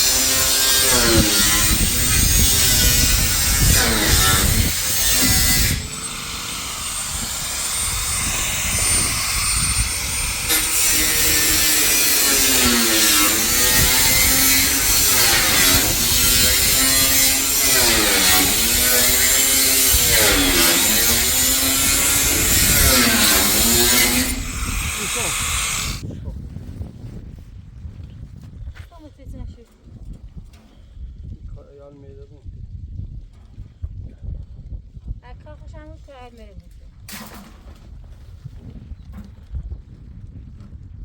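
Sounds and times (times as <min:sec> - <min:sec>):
small electric motor running: 0:00.0 - 0:26.0.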